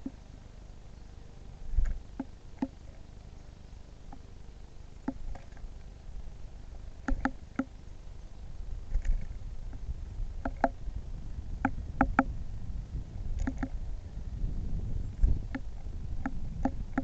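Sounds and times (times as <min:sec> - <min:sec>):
bird pecking at feeder: 0:05.0 - 0:05.7, 0:07.0 - 0:07.7, 0:10.4 - 0:10.8, 0:11.6 - 0:12.4, 0:13.4 - 0:13.8, 0:15.2 - 0:17.0.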